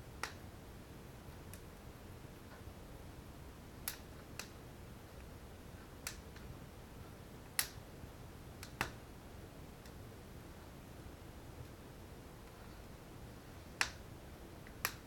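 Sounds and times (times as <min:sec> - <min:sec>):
wood fire crackling and popping: 0:00.0 - 0:00.6, 0:01.2 - 0:02.8, 0:03.6 - 0:09.2, 0:13.4 - 0:15.0
faint low hiss: 0:00.0 - 0:15.0.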